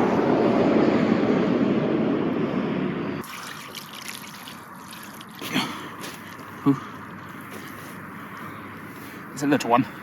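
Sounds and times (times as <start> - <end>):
water pouring: 3.2 - 6.6
water trickling and dripping: 3.2 - 6.7.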